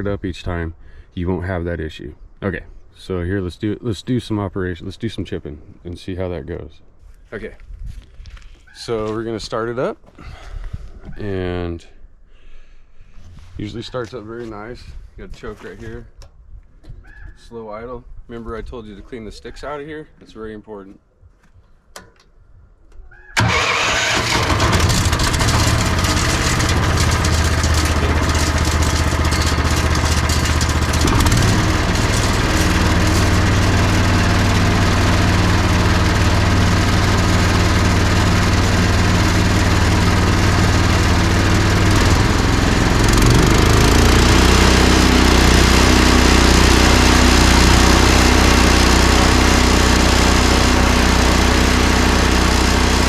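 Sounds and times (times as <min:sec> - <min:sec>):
chipper engine running: 0:23.4 - 0:53.0.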